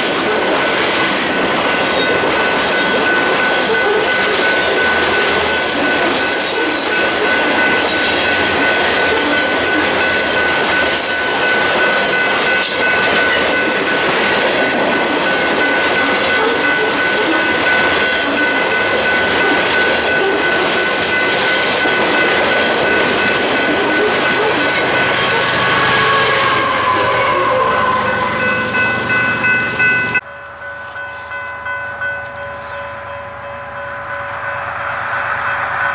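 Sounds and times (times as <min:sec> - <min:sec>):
rail joint clicks: 0:00.0 - 0:35.9
train wheels rumbling on rail: 0:00.0 - 0:35.9
high wheel squeal: 0:01.8 - 0:11.7, 0:23.6 - 0:30.2.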